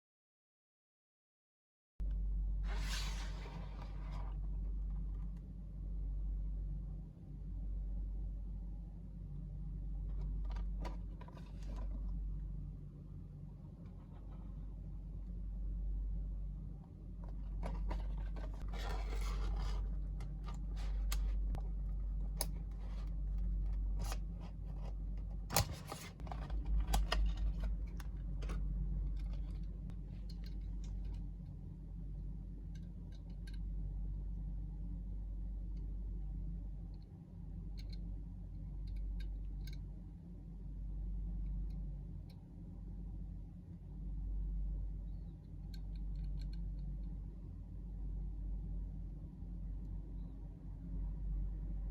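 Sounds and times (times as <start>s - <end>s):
steady low hum: 2.0s - 51.9s
packaging scraping: 17.6s - 21.2s.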